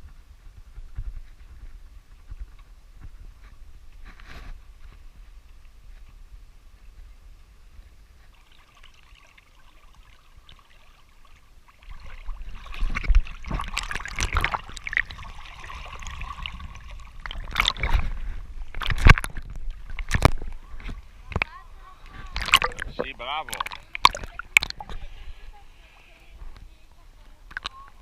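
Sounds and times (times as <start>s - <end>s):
water splashing and trickling: 7.7s - 28.0s.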